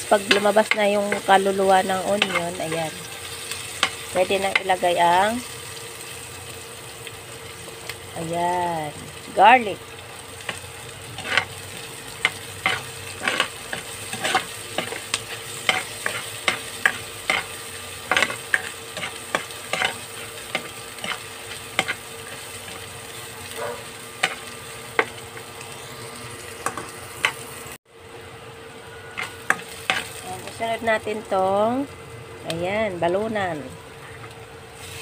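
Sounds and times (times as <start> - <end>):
onion sizzling in hot oil: 0.0 - 35.0
metal spatula scraping a pot: 11.2 - 11.5.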